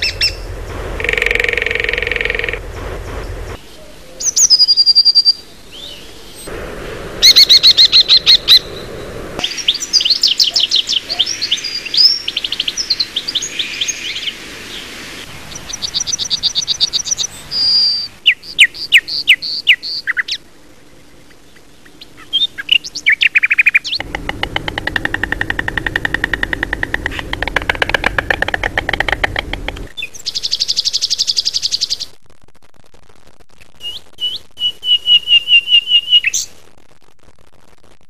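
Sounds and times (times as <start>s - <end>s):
bird chirps: 0.0s - 2.8s, 3.6s - 6.5s, 7.2s - 20.4s, 21.3s - 32.1s
birds singing and calling: 0.0s - 6.5s, 7.2s - 20.4s, 21.3s - 32.1s
held bird whistle: 7.2s - 11.3s
fast bird trills: 7.2s - 14.3s, 22.0s - 32.0s.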